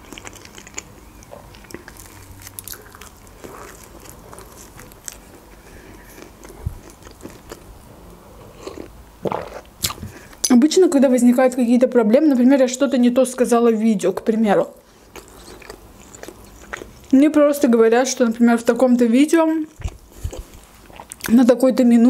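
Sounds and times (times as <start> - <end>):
chewing mouth noises: 0.0 - 7.7, 8.5 - 10.4, 15.0 - 17.2, 19.7 - 21.3.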